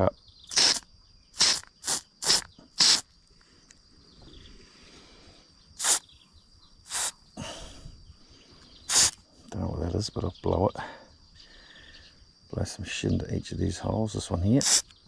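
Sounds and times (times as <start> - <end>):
high insect drone: 0.0 - 15.0
short sharp hissing bursts: 0.5 - 3.2, 4.8 - 6.2, 6.8 - 7.8, 8.8 - 9.3, 14.6 - 15.0.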